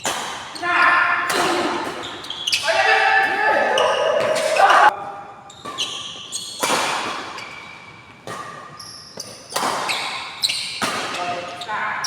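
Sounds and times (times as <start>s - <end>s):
racket hitting shuttlecock: 0.0s - 0.6s, 1.2s - 5.0s, 5.6s - 11.4s
shoe squeaks on court floor: 2.0s - 2.7s, 5.5s - 10.8s.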